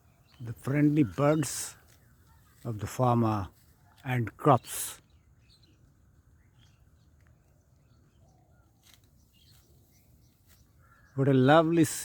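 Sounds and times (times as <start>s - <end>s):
faint bird chirps: 5.0s - 11.8s.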